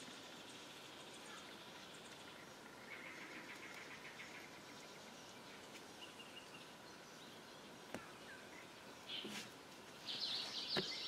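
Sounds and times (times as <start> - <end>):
faint steady hiss: 0.0 - 11.0
bird chirping trill: 9.9 - 11.0.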